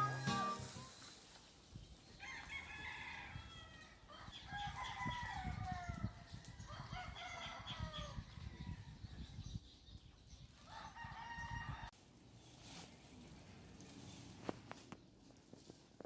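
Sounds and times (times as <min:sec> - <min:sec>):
rooster crowing: 0:02.2 - 0:06.0.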